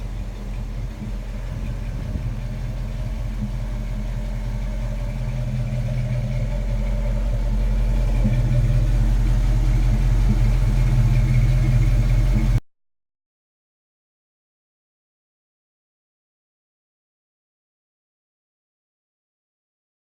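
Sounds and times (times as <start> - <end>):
car engine running: 0.0 - 12.6.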